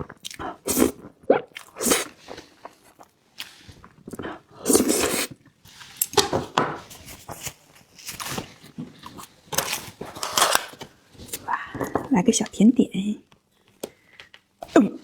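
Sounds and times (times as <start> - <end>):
person chewing and crunching food: 0.0 - 11.9.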